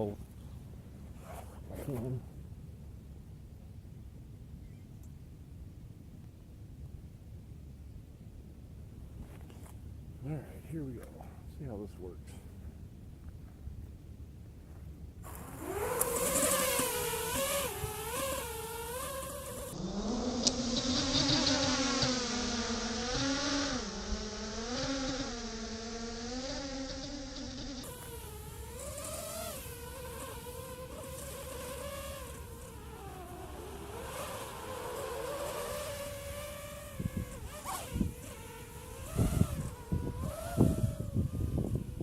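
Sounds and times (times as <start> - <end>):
quadcopter motors buzzing: 15.2 - 42.0.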